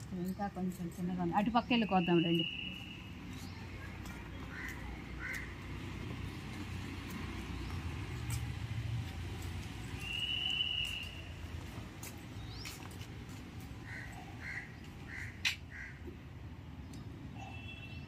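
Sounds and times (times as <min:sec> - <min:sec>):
birds calling: 0:01.4 - 0:05.9, 0:12.4 - 0:16.2.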